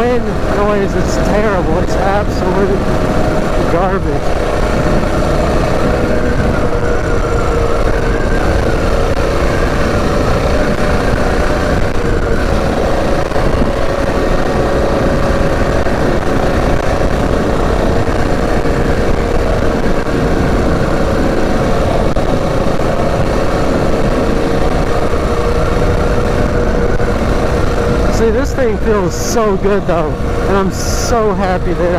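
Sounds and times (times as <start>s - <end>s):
mini bike engine running: 0.0s - 31.9s
wind buffeting microphone: 0.0s - 31.9s.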